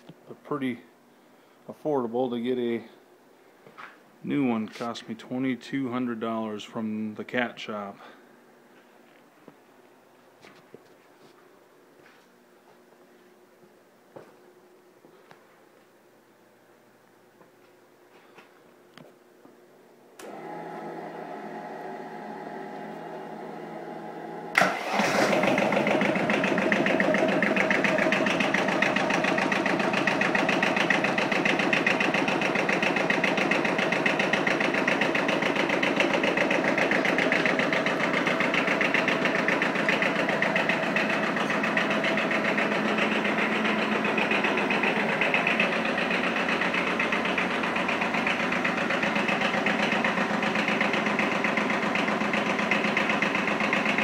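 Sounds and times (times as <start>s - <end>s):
starter motor whirring: 20.2s - 54.0s
diesel engine idling: 22.0s - 54.0s.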